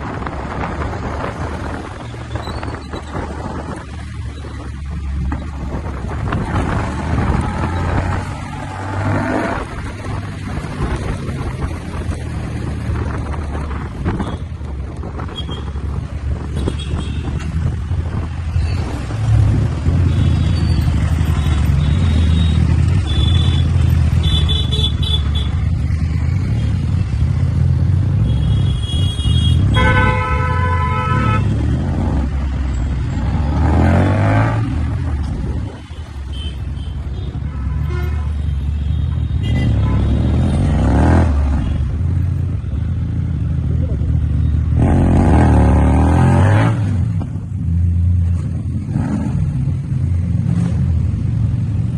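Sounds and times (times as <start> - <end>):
traffic horns tooting: 20.0 - 25.7, 28.2 - 31.7, 35.8 - 41.9.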